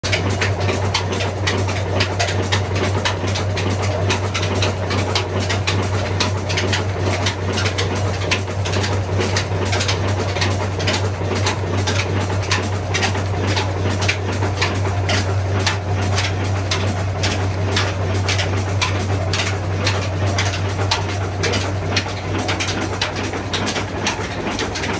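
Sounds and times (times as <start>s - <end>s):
stationary engine knocking: 0.0s - 24.9s.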